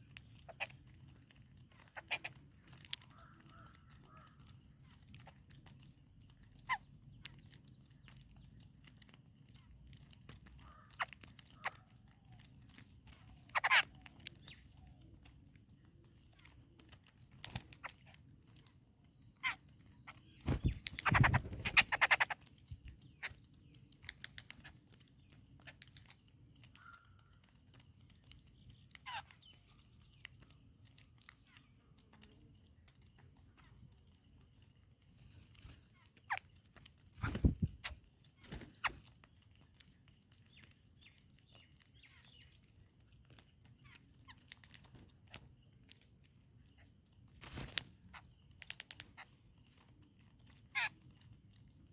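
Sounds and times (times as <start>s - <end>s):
birds calling: 0.0s - 5.4s, 10.5s - 27.7s, 28.6s - 30.3s, 35.2s - 39.4s, 50.6s - 51.1s.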